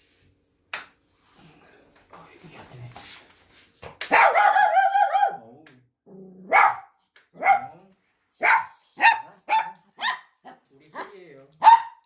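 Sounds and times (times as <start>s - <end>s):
dog barking: 4.1s - 5.5s, 6.4s - 7.8s, 8.4s - 12.0s.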